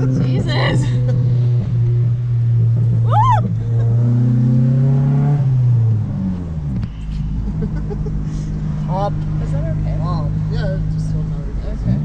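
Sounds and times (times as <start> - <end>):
car exhaust droning: 0.0 - 12.0
high rising-and-falling whoop: 3.0 - 3.6.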